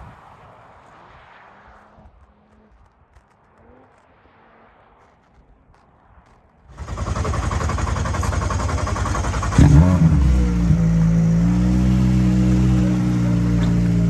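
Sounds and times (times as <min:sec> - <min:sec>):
car engine running hard: 0:06.8 - 0:14.0.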